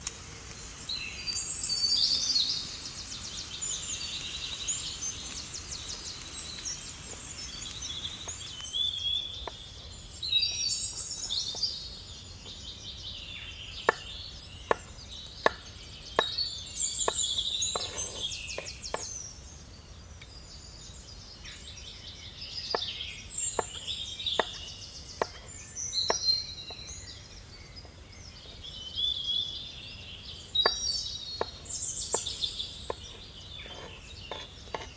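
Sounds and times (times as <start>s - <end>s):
faint steady hiss: 0.0s - 13.6s
songbirds singing and chirping: 0.0s - 34.9s.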